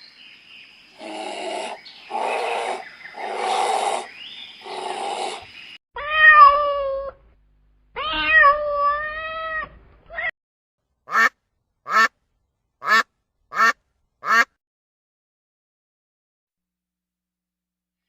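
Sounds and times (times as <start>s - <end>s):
cat meowing: 6.0s - 7.2s, 8.0s - 10.3s.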